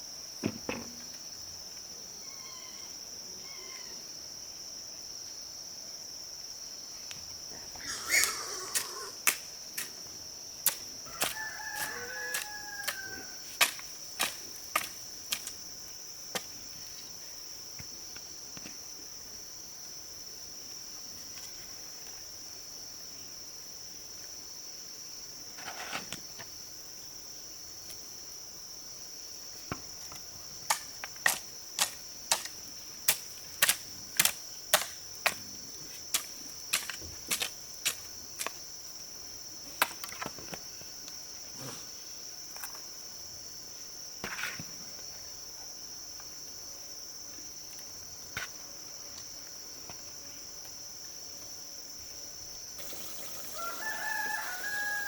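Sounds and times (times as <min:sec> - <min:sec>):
high-pitched insect chorus: 0:00.0 - 0:55.0
rooster crowing: 0:11.1 - 0:13.4, 0:52.8 - 0:55.0.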